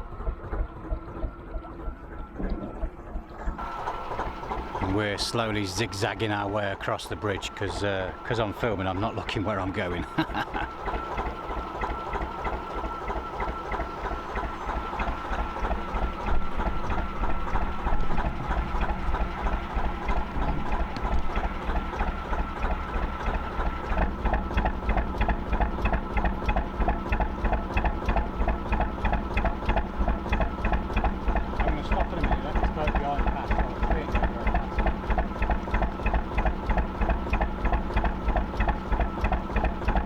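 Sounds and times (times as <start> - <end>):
diesel boat engine chugging: 0.0 - 40.0.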